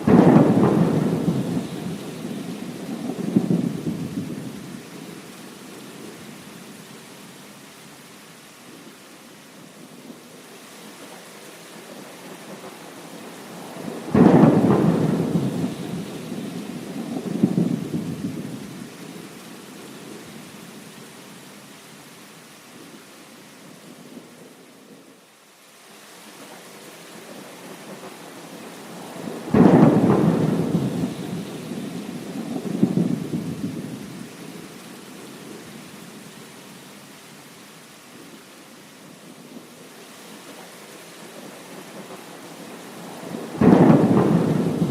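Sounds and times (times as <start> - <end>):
thunder clap and rumbling: 0.0 - 4.6, 13.8 - 18.8, 29.4 - 34.2, 43.2 - 44.9
steady rain: 0.0 - 44.9.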